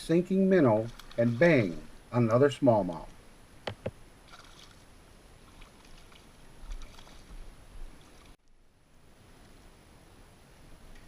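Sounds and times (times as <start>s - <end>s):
water and hull hiss: 0.0s - 8.4s.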